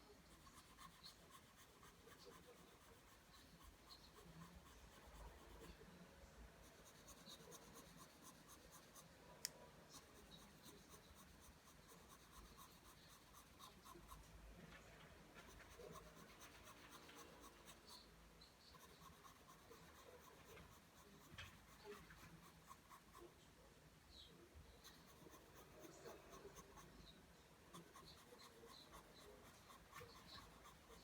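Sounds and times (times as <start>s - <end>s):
pencil scratching on paper: 0.0s - 14.4s, 15.1s - 23.4s, 24.6s - 31.0s.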